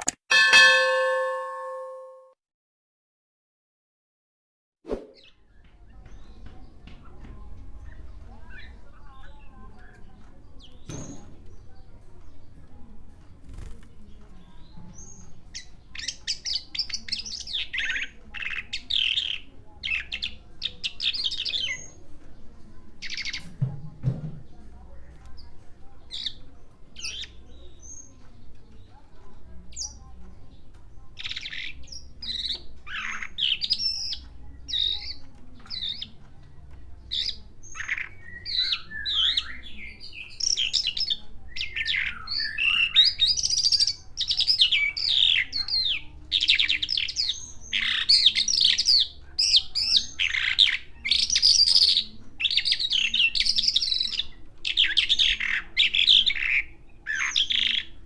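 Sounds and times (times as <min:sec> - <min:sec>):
bird chirping and trilling: 0:00.3 - 0:02.2, 0:31.2 - 0:36.2, 0:37.1 - 0:58.0.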